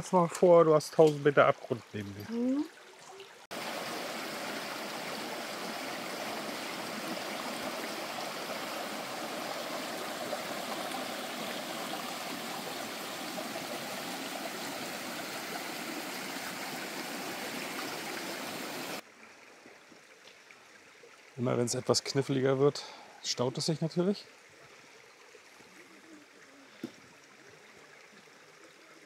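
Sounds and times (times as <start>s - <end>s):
small waterfall: 0.0s - 29.0s
mountain stream rushing: 3.5s - 19.0s.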